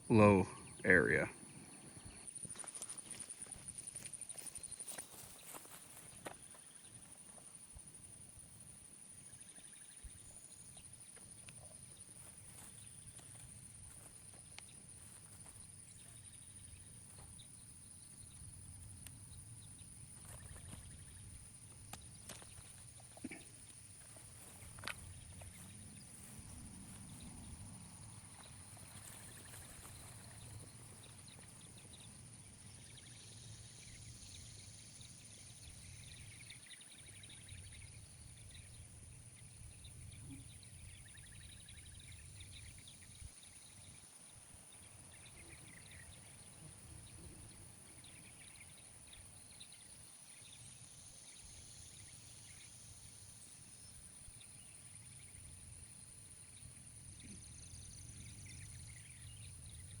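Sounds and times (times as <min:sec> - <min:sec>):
faint bird chirps: 0:09.1 - 0:53.0.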